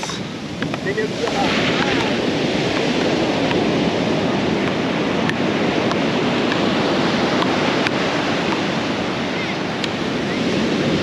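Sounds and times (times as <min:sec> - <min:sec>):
ocean surf breaking: 0:00.0 - 0:11.0
wind on microphone: 0:00.0 - 0:11.0.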